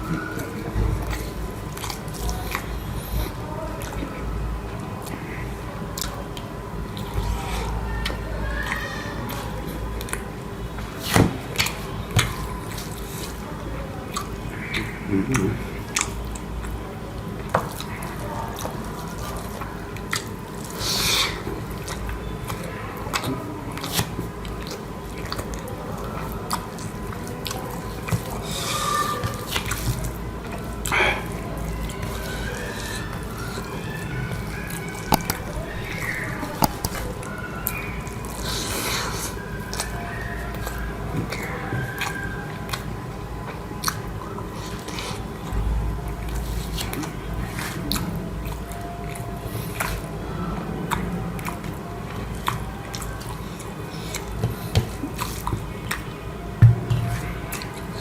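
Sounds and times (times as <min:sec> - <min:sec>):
wet eating sounds: 0:00.0 - 0:45.6, 0:46.2 - 0:56.5, 0:57.1 - 0:58.0.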